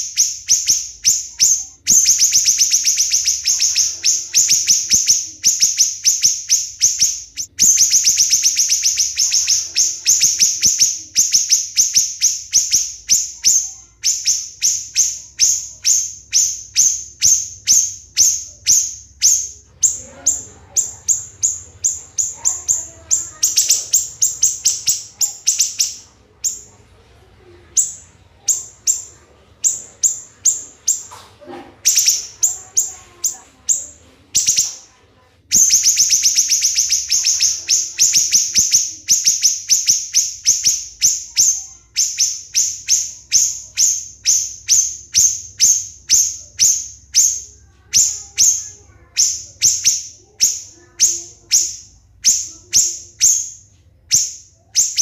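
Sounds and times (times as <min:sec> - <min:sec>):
bird singing shrill high notes: 0:00.0 - 0:26.7, 0:35.6 - 0:47.4.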